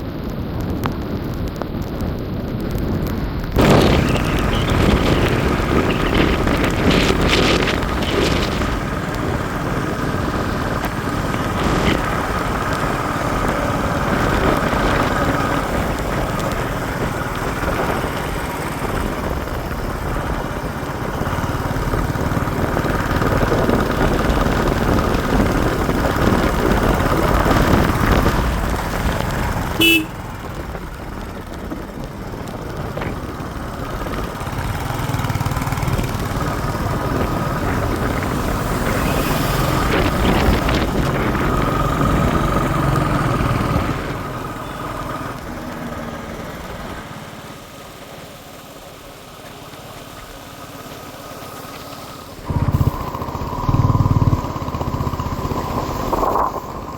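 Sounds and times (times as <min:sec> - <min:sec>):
motorcycle engine running: 0:00.0 - 0:56.9
road noise: 0:00.0 - 0:56.9
short horn toot: 0:29.8 - 0:30.2.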